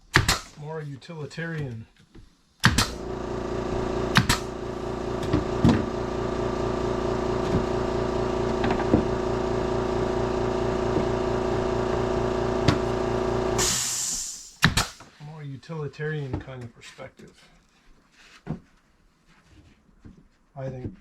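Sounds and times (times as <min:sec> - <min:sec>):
machine motor humming: 0:02.7 - 0:14.0
sharp clicks or knocks: 0:04.1 - 0:04.5
brief hiss: 0:13.6 - 0:14.7.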